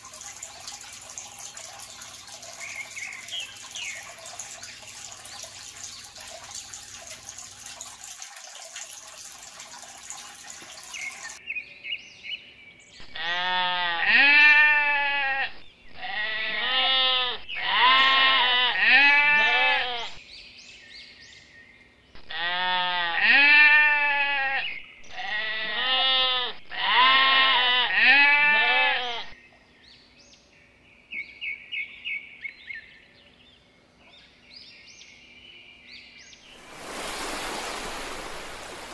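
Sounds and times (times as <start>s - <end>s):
sheep or goats bleating: 13.1s - 20.2s, 22.2s - 29.4s
steady hiss: 36.5s - 38.9s.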